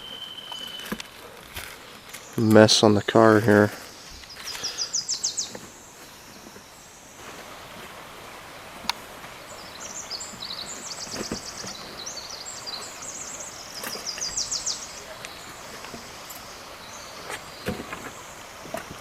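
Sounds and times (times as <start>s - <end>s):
songbird singing high trills: 0.0s - 1.0s, 3.8s - 7.0s, 9.4s - 18.6s
faint forest background: 0.0s - 19.0s.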